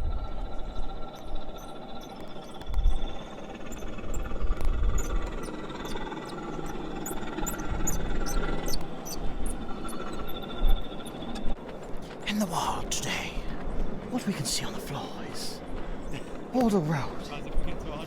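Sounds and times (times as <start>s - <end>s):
wind buffeting microphone: 0.0s - 12.2s
faint steady hum: 0.0s - 18.0s
sharp ticks: 0.6s - 11.6s.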